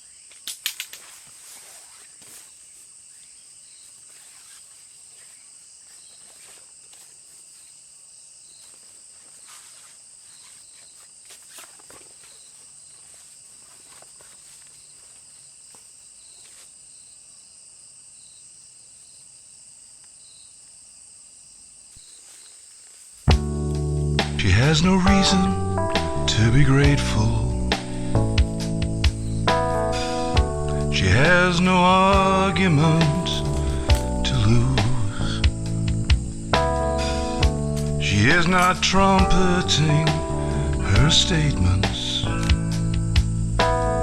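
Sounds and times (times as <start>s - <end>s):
insect chorus: 0.0s - 44.0s
faint ticks and rustles: 0.3s - 17.1s.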